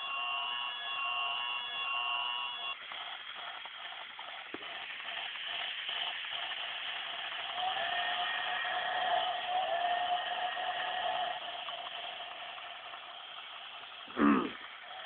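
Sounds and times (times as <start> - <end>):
wavering whistle-like tone: 0.0 - 2.8
toy train steam hiss and chuffing: 0.0 - 15.0.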